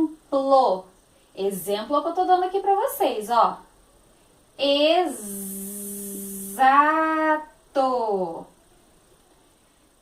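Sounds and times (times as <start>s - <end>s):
woman speaking vowels: 0.0s - 3.6s, 4.6s - 8.6s
woman buzzing a z sound: 5.0s - 6.8s.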